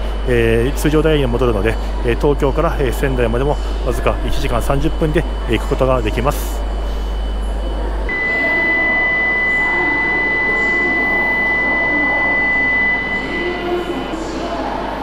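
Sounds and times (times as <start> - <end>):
steady high tone: 7.3 - 15.0.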